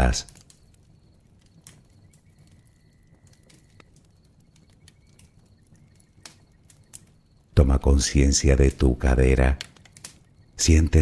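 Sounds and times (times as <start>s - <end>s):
sharp fire pops: 0.0s - 7.6s, 9.4s - 10.5s
bonfire crackling: 0.0s - 11.0s
low rumble of fire: 0.0s - 11.0s.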